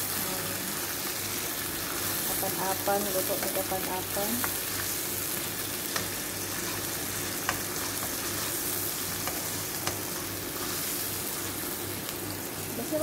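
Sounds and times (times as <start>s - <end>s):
food sizzling in hot oil: 0.0s - 13.0s
spatula clicking against pan: 5.9s - 6.2s.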